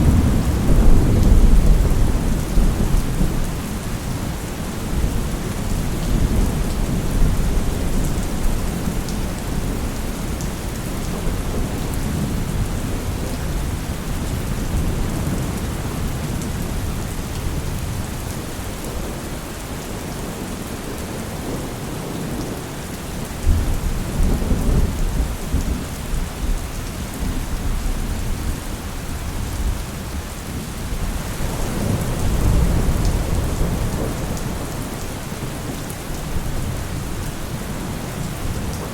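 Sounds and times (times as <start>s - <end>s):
low thunder rolling: 0.0s - 3.9s
heavy rain: 0.0s - 38.9s.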